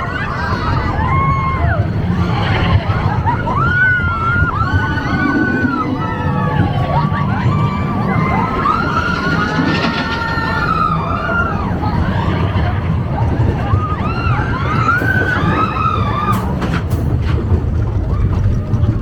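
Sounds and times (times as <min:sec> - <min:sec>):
riders whooping and screaming: 0:00.0 - 0:19.0
roller coaster rumbling on track: 0:00.0 - 0:19.0
sharp clacks: 0:08.5 - 0:11.8.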